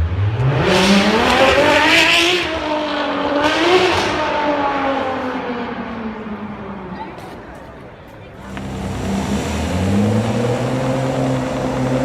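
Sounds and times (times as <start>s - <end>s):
car engine accelerating hard: 8.4s - 12.0s.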